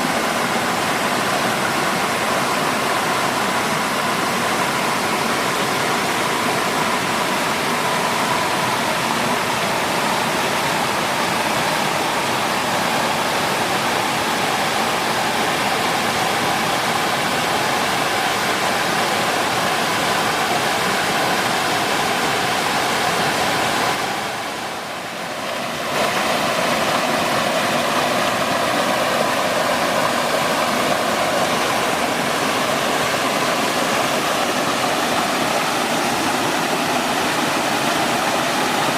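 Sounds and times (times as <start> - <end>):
waterfall and stream rushing: 0.0 - 38.9.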